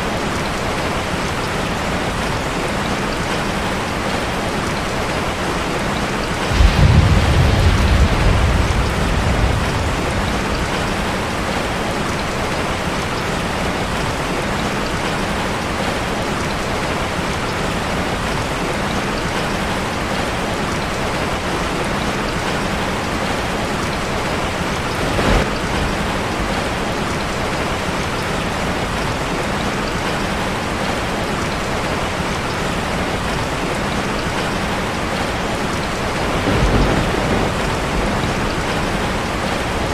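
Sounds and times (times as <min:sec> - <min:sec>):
rain drumming on metal roof: 0:00.0 - 0:39.9
low thunder rumble: 0:06.2 - 0:14.0, 0:24.0 - 0:27.6, 0:35.9 - 0:39.9
short thunder crack: 0:06.4 - 0:11.8.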